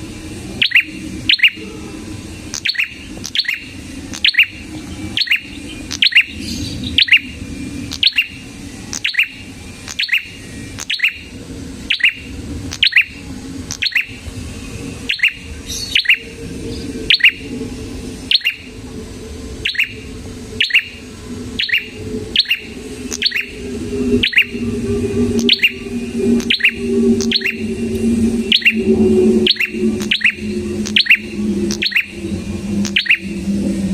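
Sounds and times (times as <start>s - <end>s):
low steady hum: 0.0s - 33.9s
bird chip notes: 21.6s - 33.4s.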